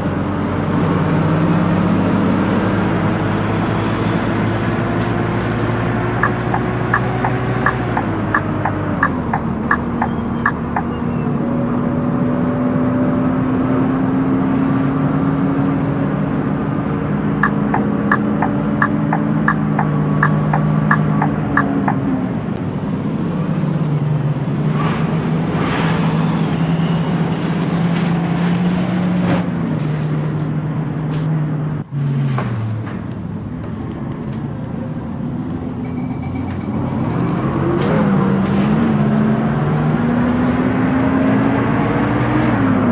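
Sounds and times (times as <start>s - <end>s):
bus engine running: 0.0s - 42.9s
regular sharp clicking: 5.9s - 10.9s, 17.4s - 22.0s.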